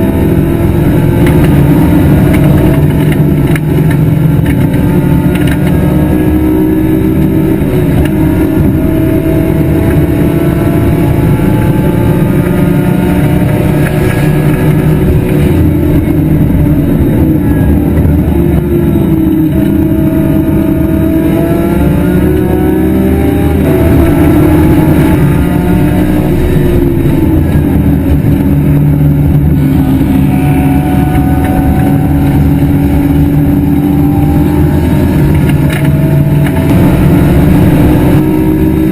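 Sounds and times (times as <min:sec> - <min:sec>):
race car engine accelerating: 0:00.0 - 0:38.9.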